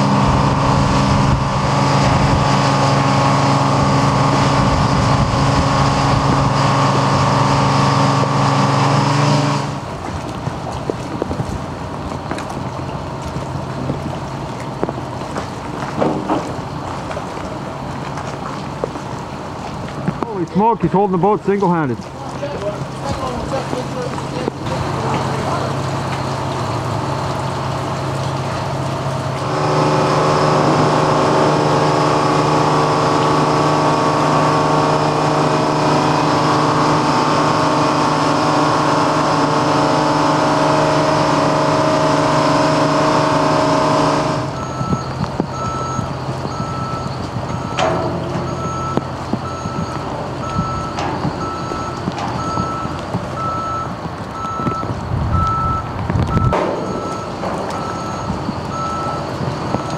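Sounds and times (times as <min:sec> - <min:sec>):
lift engine and hydraulics whining: 0:00.0 - 0:10.0, 0:22.8 - 0:59.9
reversing alarm beeping: 0:39.7 - 0:59.9.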